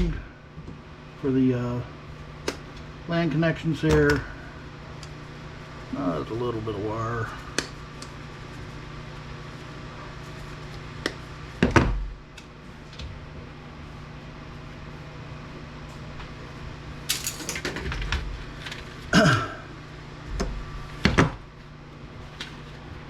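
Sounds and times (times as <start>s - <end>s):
electronic parts knocking and clattering: 17.1s - 18.2s.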